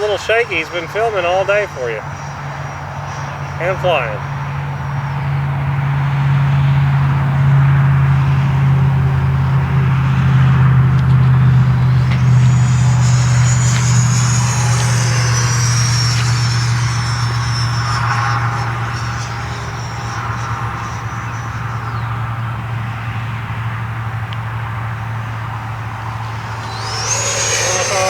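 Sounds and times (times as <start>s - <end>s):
high fan whine: 0.0s - 28.0s
low jet rumble: 9.0s - 28.0s.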